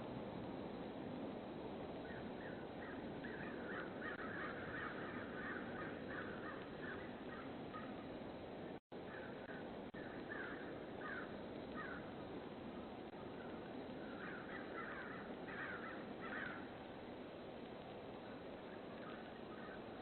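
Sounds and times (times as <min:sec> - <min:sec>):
steady background hiss: 0:00.0 - 0:20.0
birds calling: 0:02.0 - 0:08.1, 0:09.0 - 0:12.0, 0:13.4 - 0:16.7, 0:18.9 - 0:20.0.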